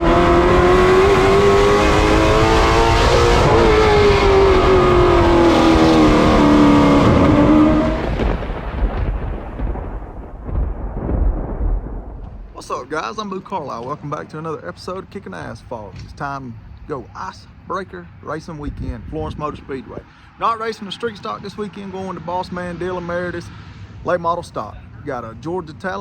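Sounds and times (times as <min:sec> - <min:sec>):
race car engine revving: 0:00.0 - 0:08.3.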